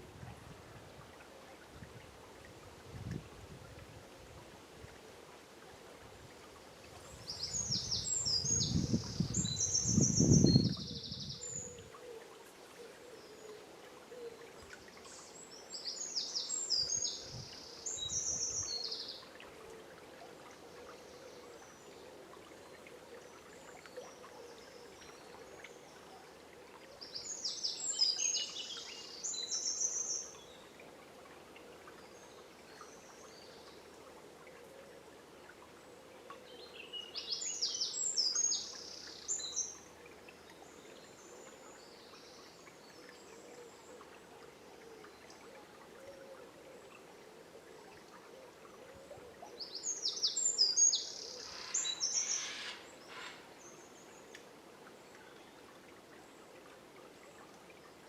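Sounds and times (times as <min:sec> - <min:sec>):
songbird singing: 0:07.1 - 0:12.2, 0:27.0 - 0:30.8, 0:36.3 - 0:44.2, 0:48.9 - 0:54.5.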